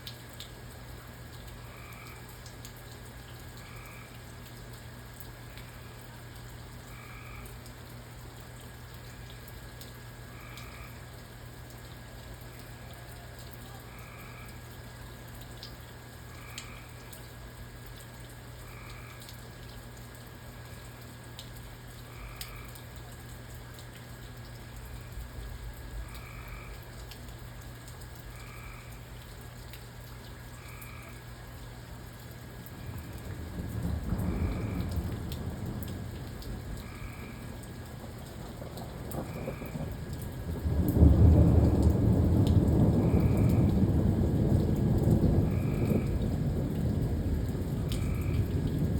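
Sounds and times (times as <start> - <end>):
faint drips: 0.1 - 43.8, 44.7 - 48.9
frog croaking: 1.6 - 2.3, 3.6 - 4.3, 6.9 - 7.6, 10.3 - 11.0, 13.9 - 14.7, 16.3 - 17.2, 18.6 - 19.4, 22.0 - 22.8, 26.0 - 27.1, 28.2 - 29.2, 30.5 - 31.4, 32.8 - 40.3, 42.9 - 43.8, 45.4 - 46.3, 47.8 - 48.7.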